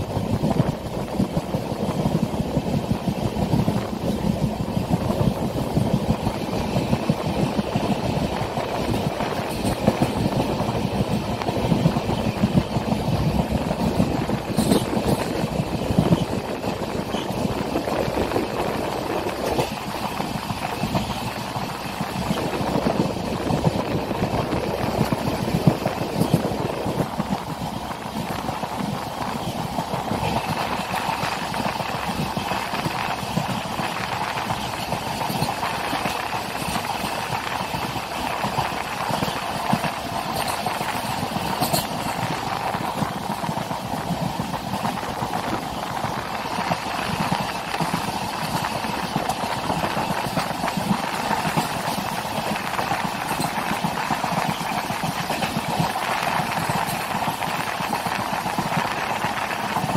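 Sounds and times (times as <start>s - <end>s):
train wheels clattering over rail joints: 0.0s - 59.9s.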